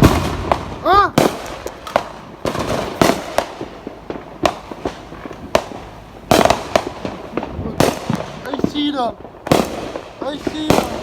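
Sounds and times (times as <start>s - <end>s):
fireworks bangs: 0.0s - 11.0s
fireworks crackling pops: 0.0s - 11.0s.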